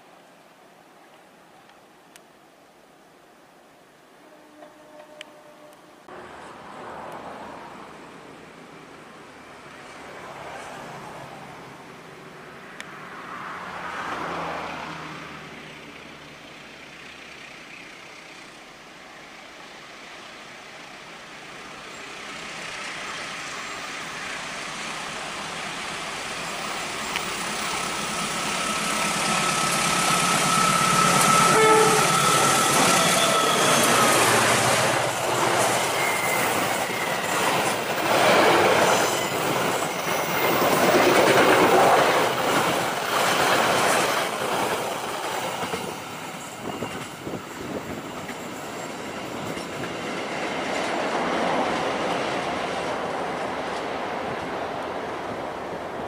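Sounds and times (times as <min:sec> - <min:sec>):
train horn: 0:04.2 - 0:06.1, 0:29.4 - 0:34.6
locomotive passing: 0:12.7 - 0:56.0.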